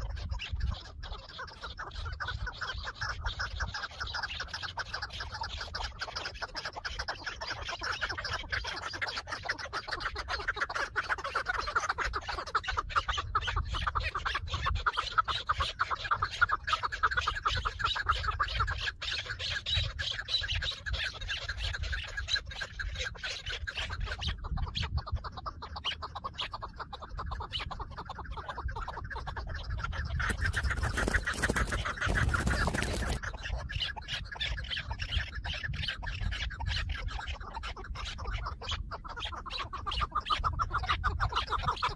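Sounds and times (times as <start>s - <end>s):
partridges clucking: 30.1s - 33.4s.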